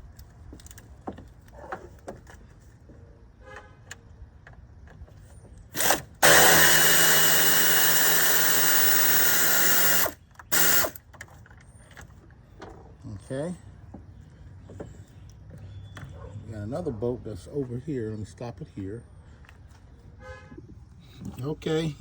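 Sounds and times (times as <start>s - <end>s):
cordless drill spinning: 5.7s - 11.0s.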